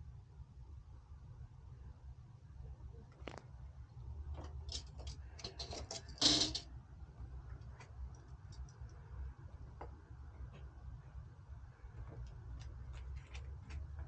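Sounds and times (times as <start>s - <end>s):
low steady hum: 0.0s - 14.0s
small hard parts clicking and rattling: 4.3s - 6.7s.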